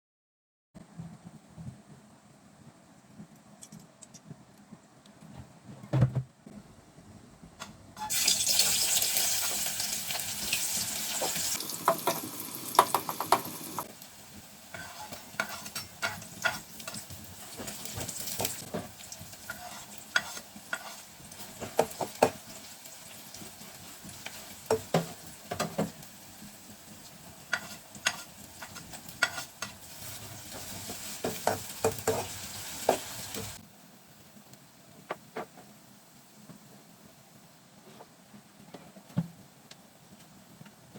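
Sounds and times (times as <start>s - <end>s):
chickpeas sizzling in a pan: 8.0s - 33.6s.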